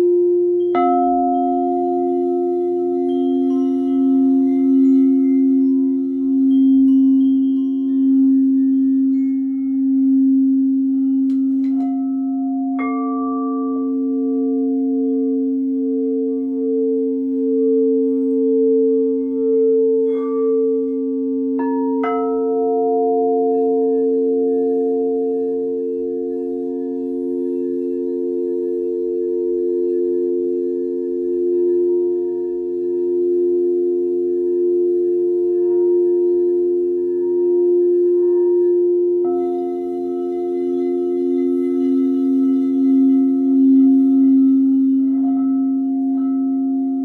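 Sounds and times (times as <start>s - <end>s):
singing bowls ringing: 0.0s - 47.0s.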